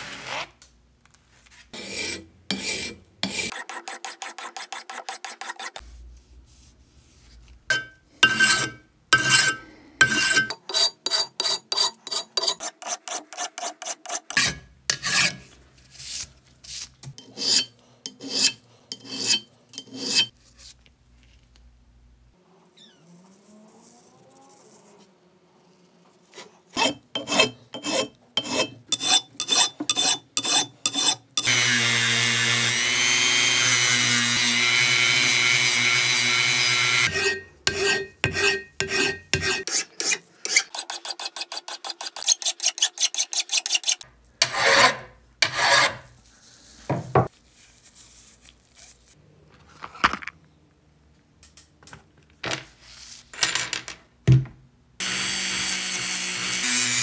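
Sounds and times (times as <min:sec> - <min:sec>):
file rasping on metal: 0:01.8 - 0:05.8, 0:07.7 - 0:16.2, 0:17.1 - 0:20.3, 0:26.4 - 0:31.6, 0:33.0 - 0:46.1
rotary tool sanding metal: 0:07.7 - 0:15.4, 0:17.2 - 0:20.3, 0:26.8 - 0:46.1.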